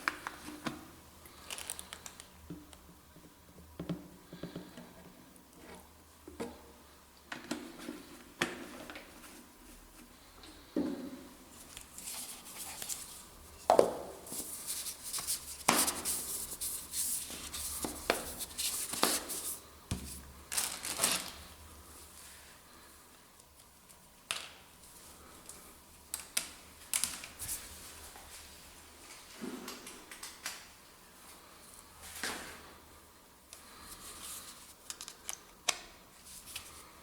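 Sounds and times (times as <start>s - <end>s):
packaging crinkly rustling: 1.3s - 2.3s, 14.3s - 21.5s.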